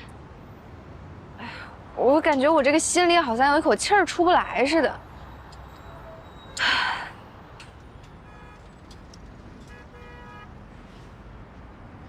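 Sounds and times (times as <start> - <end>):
distant city traffic: 0.0 - 12.0
car horn toots: 8.1 - 9.0, 9.6 - 10.5.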